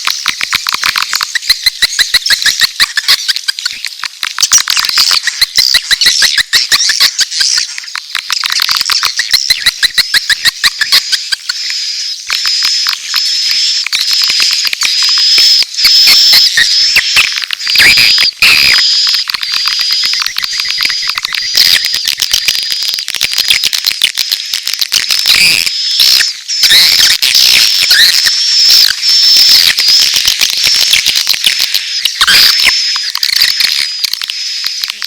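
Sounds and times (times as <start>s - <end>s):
swiftlet clicks: 0.0s - 26.4s.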